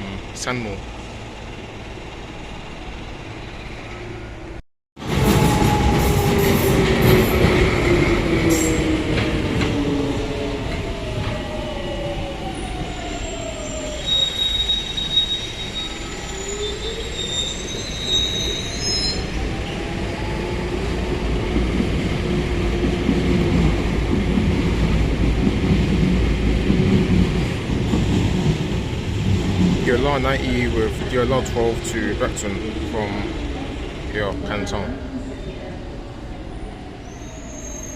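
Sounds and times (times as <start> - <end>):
high wheel squeal: 12.9 - 19.5, 37.0 - 37.9
wheels rumbling on track: 19.2 - 36.8.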